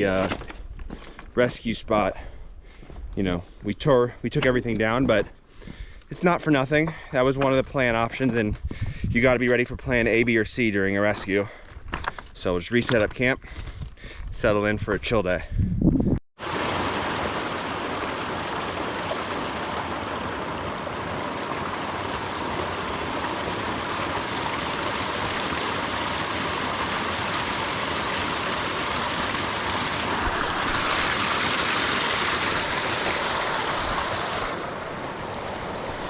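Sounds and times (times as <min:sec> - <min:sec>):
mountain stream rushing: 0:16.4 - 0:36.0.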